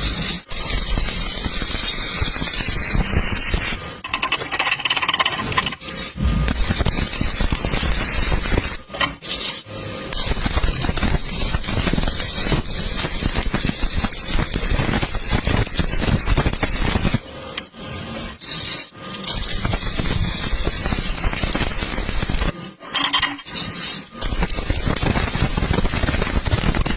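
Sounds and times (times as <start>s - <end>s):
arc welding crackling: 0.0s - 17.6s, 18.2s - 26.9s.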